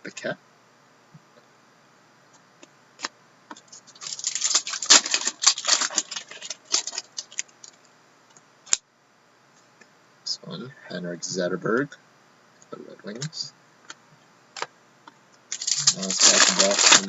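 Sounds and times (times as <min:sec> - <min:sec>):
trading cards shuffling: 0:03.0 - 0:07.8, 0:15.5 - 0:17.0.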